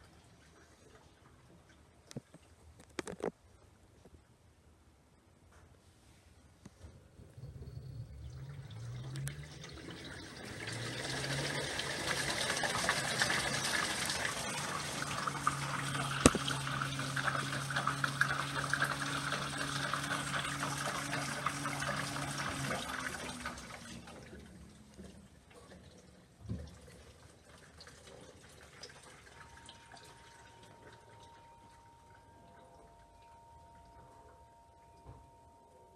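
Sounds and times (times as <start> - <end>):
low hum: 6.7 - 23.6
water rushing in washing machine: 7.1 - 31.3.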